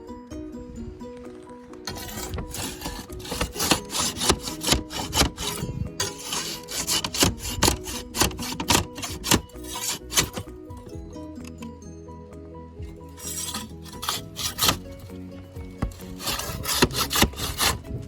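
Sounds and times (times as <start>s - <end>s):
light ukulele music: 0.0s - 18.0s
hand tool scraping back and forth: 1.7s - 10.9s, 12.9s - 18.0s.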